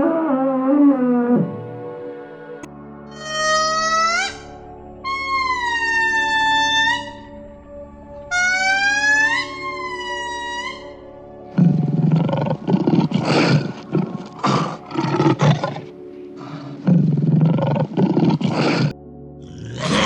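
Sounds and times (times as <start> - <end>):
background music: 0.0 - 20.0
animal falling call: 11.6 - 16.8, 17.4 - 18.9
big cat growling and roaring: 11.6 - 20.0.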